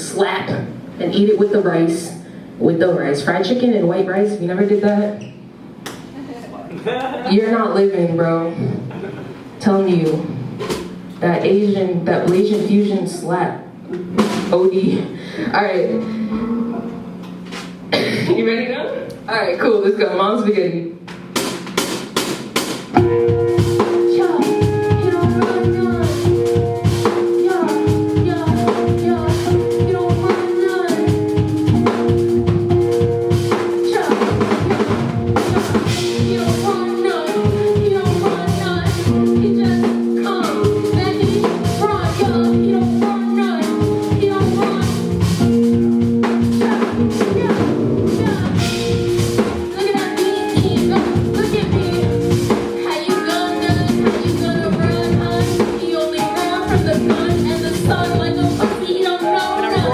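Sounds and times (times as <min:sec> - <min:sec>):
instrumental music with drum kit: 0:10.2 - 0:12.7, 0:13.7 - 0:18.4, 0:21.0 - 0:59.9.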